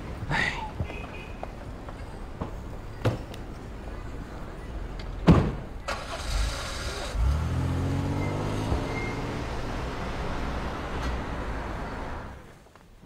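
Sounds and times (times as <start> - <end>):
car engine revving: 5.9 - 12.4.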